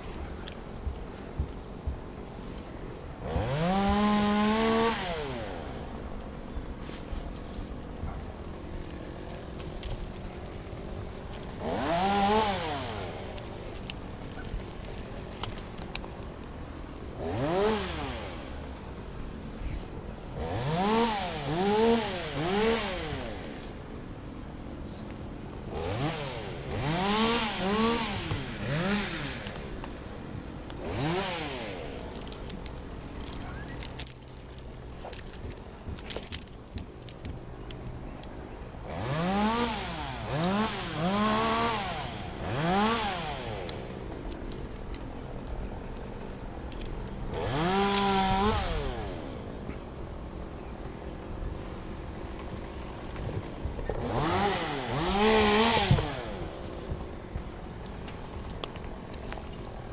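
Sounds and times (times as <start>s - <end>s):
chainsaw revving: 3.2s - 5.8s, 8.8s - 15.0s, 17.2s - 18.8s, 20.3s - 23.6s, 25.7s - 29.8s, 30.8s - 32.8s, 38.8s - 44.1s, 47.3s - 49.5s, 53.8s - 56.8s.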